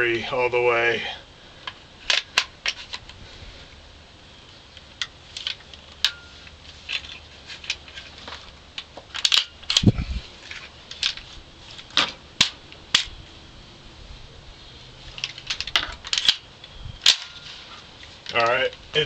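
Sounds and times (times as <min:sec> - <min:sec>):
metallic clicks of rifle handling: 0:01.6 - 0:03.2, 0:04.7 - 0:09.9, 0:10.5 - 0:11.3, 0:15.1 - 0:17.4, 0:18.0 - 0:18.8.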